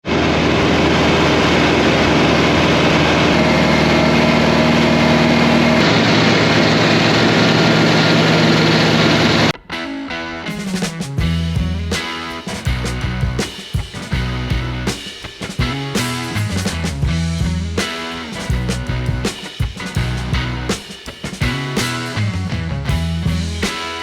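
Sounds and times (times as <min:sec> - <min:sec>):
machine engine running loudly: 0:00.0 - 0:09.5
music with drums and guitar: 0:09.6 - 0:24.0.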